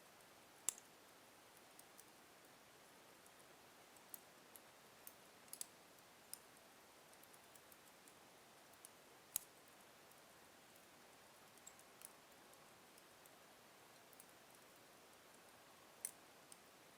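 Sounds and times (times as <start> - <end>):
faint steady hiss: 0.0 - 16.9
wood fire crackling: 11.5 - 13.4.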